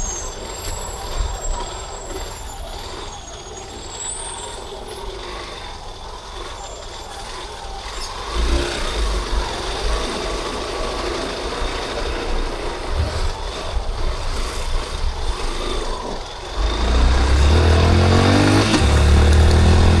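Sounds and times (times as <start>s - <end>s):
street traffic: 0.0s - 20.0s
motorcycle engine accelerating: 4.7s - 20.0s.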